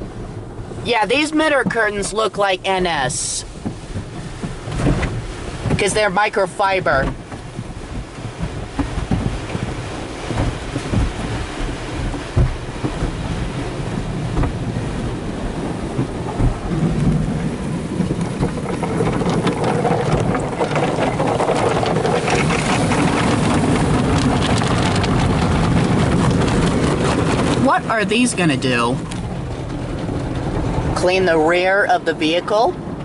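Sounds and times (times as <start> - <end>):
water spraying: 0.0 - 33.0
wash strips slapping on car body: 3.5 - 6.0, 7.0 - 31.0
thumps: 6.8 - 13.4.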